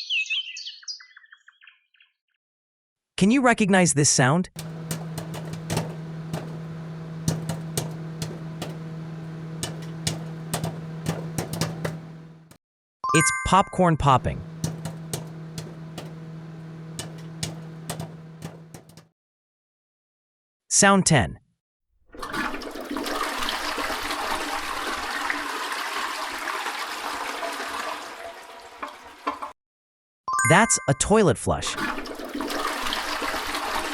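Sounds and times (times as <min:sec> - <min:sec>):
popcorn popping: 0:04.6 - 0:12.5, 0:14.1 - 0:19.0, 0:22.2 - 0:28.1, 0:31.8 - 0:33.9
steady hum: 0:04.6 - 0:12.6, 0:14.1 - 0:19.0
toilet flushing: 0:04.6 - 0:12.6, 0:14.1 - 0:19.1, 0:22.1 - 0:29.6, 0:31.7 - 0:33.9.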